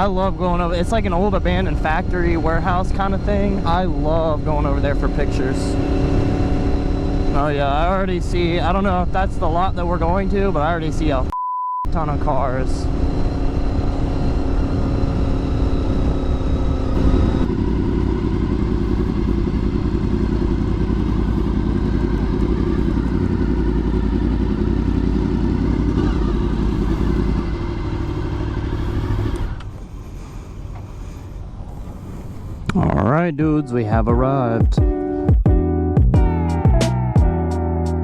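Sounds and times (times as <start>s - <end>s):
motorcycle engine running: 0.0s - 11.3s, 11.9s - 33.0s.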